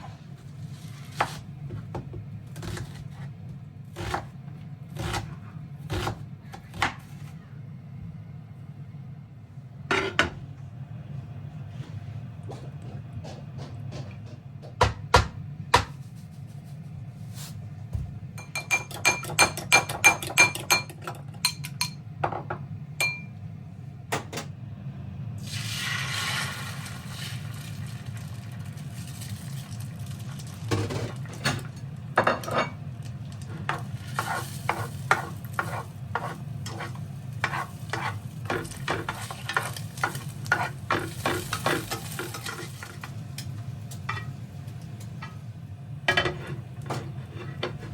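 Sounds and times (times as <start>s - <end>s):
low steady hum: 0.0s - 25.5s
stirring taps: 12.4s - 16.0s, 17.9s - 23.3s, 33.5s - 44.3s
metal utensil clinking on bowl: 18.4s - 22.0s, 23.0s - 23.3s.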